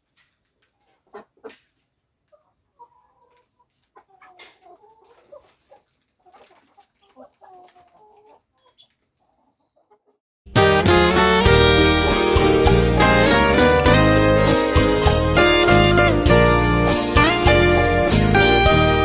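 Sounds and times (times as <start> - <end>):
chickens clucking faintly: 0.2 - 10.2.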